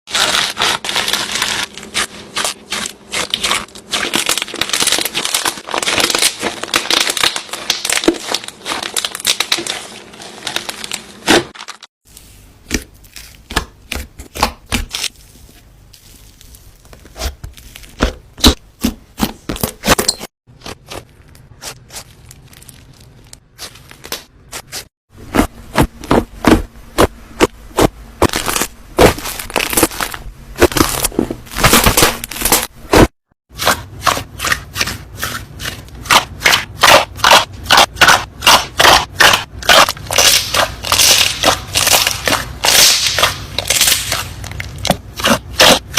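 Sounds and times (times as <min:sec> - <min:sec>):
slime crackling and popping: 0:00.1 - 0:11.9, 0:20.9 - 0:24.3, 0:28.2 - 0:33.1, 0:36.0 - 0:45.8.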